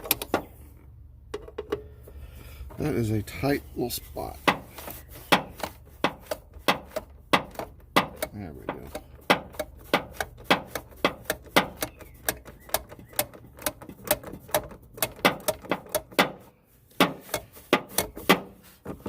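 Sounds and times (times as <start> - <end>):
socket ratchet clicking: 5.5 - 16.2.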